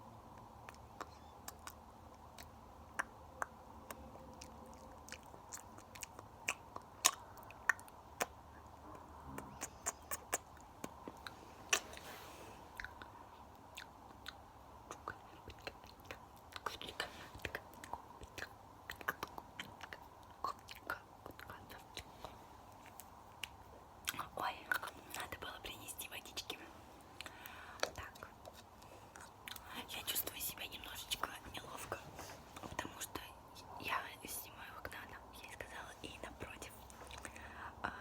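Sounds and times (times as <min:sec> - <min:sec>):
wet mouth clicks and smacks: 0:00.4 - 0:12.0, 0:12.8 - 0:21.7, 0:27.2 - 0:31.9.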